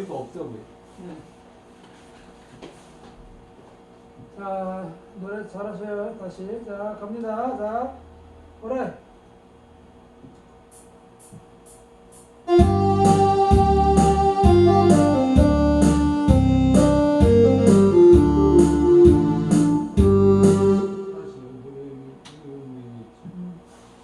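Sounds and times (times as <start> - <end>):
steady low beat: 10.7 - 21.8
keyboard and organ melody: 12.4 - 21.7.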